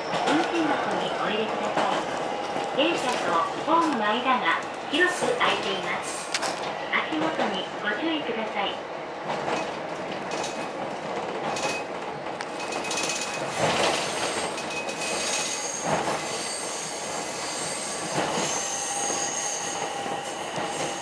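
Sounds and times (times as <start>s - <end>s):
wheels rumbling on rail: 0.0s - 21.0s
high-pitched wheel squeal: 15.0s - 21.0s.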